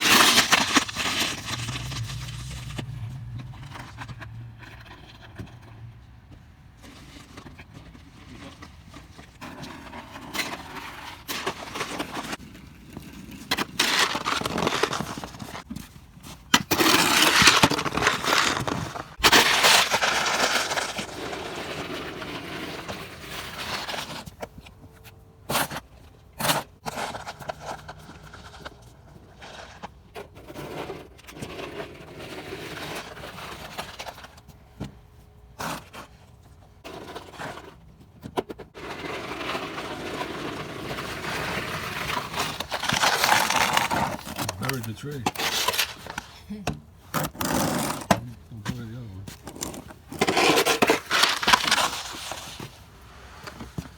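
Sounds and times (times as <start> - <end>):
snow shovel scraping snow: 0.0 - 4.0, 9.4 - 15.6, 16.6 - 24.3, 38.8 - 53.9.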